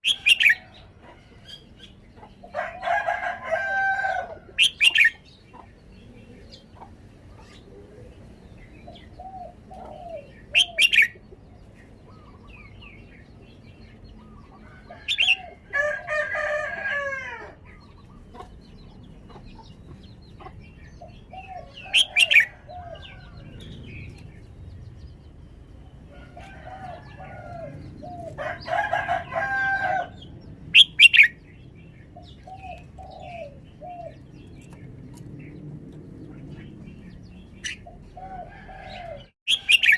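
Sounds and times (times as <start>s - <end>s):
rooster crowing: 2.5s - 4.7s, 14.6s - 17.6s, 26.1s - 30.2s, 38.2s - 39.9s.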